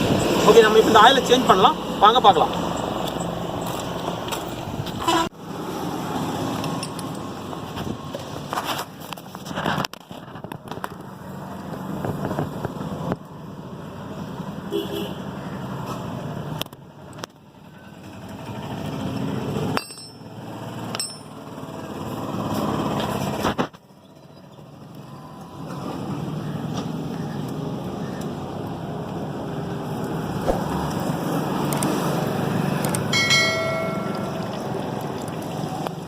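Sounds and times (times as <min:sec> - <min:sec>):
metal tools clicking and knocking: 0:06.6 - 0:07.3, 0:19.8 - 0:20.2, 0:20.9 - 0:21.4
metallic ring: 0:19.8 - 0:20.3, 0:20.9 - 0:21.4, 0:33.1 - 0:34.6.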